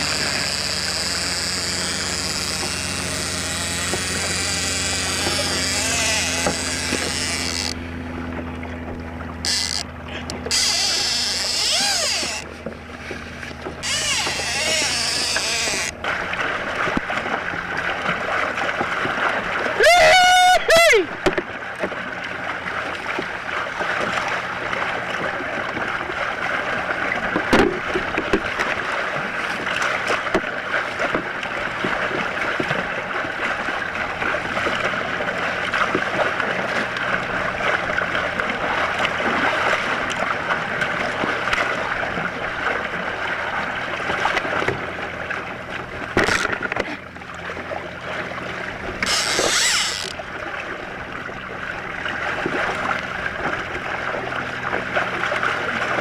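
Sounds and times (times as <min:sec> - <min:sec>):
water sloshing against kayak hull: 0:00.0 - 0:20.0, 0:21.0 - 0:56.0
water splash: 0:21.1 - 0:56.0
sharp knocks on hull: 0:21.2 - 0:22.0, 0:27.3 - 0:28.8, 0:46.1 - 0:46.9.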